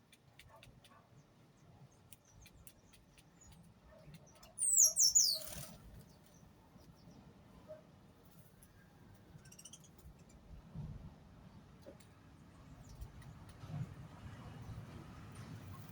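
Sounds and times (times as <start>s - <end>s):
soft peeps: 2.1s - 5.8s
bird calling shrill notes: 4.6s - 5.6s.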